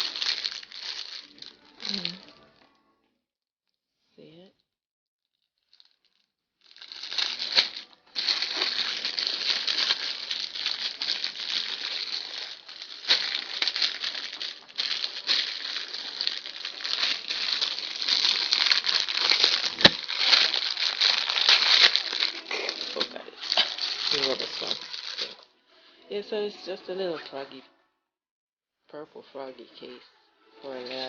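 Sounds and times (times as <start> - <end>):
packaging crinkling and rustling: 0.0 - 2.3, 5.5 - 25.4.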